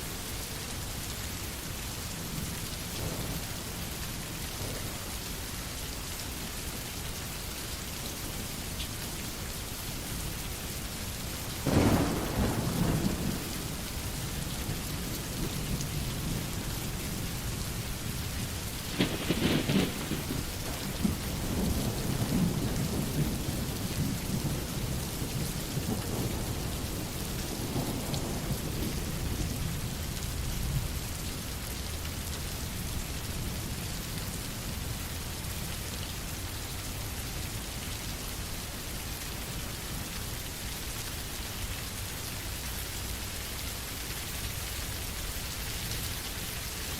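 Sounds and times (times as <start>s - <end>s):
steady rain falling: 0.0s - 46.9s
rolling thunder rumble: 2.2s - 5.5s, 11.6s - 31.0s
thunder claps: 3.0s - 5.1s, 11.6s - 29.7s.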